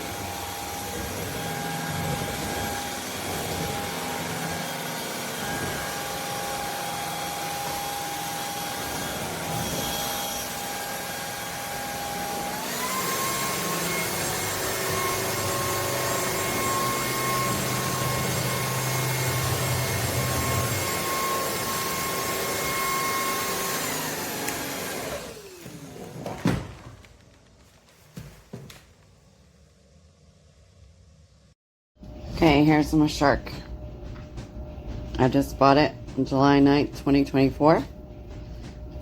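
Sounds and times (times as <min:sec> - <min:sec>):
stick vacuum motor whine: 0:00.0 - 0:27.2.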